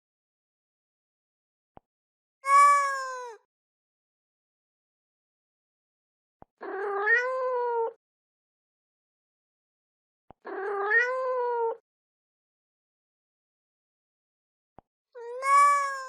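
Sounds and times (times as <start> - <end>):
cat meowing: 2.4 - 3.4, 6.6 - 8.0, 10.5 - 11.8, 15.2 - 16.0.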